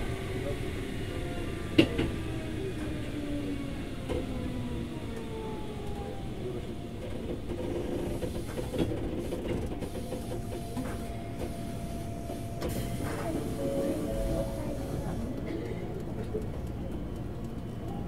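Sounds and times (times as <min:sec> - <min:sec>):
train wheels rumbling on rail: 0:00.0 - 0:18.0
sharp train clicks: 0:07.1 - 0:11.6.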